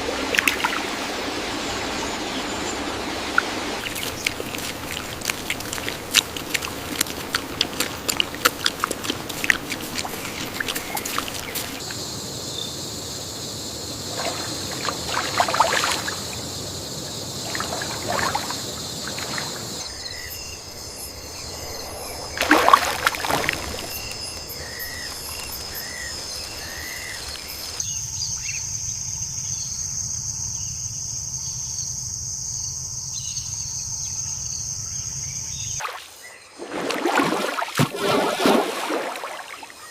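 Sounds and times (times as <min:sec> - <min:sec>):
water trickling and splashing: 0:00.0 - 0:12.0, 0:13.9 - 0:27.8, 0:35.8 - 0:39.9
high insect drone: 0:03.8 - 0:36.3.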